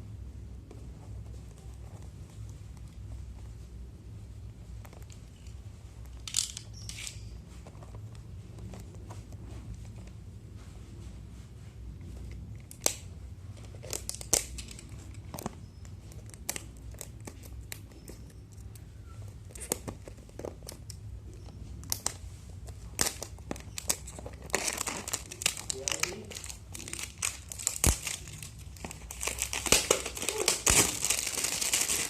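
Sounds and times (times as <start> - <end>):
low steady hum: 0.0 - 32.0
plastic packaging crinkling and tearing: 12.5 - 21.0, 21.8 - 32.0.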